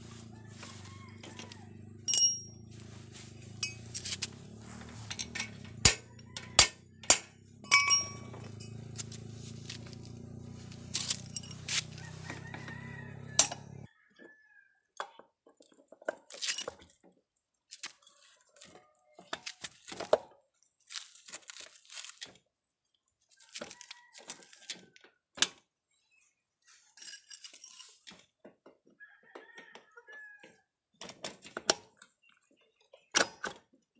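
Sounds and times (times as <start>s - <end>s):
clicks and clinks of tools: 5.0s - 9.1s, 10.9s - 12.7s, 13.4s - 13.7s.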